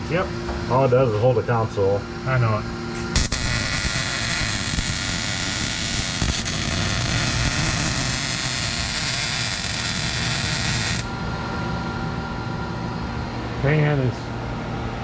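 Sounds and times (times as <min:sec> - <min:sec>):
welding arc hissing: 0:03.0 - 0:11.1.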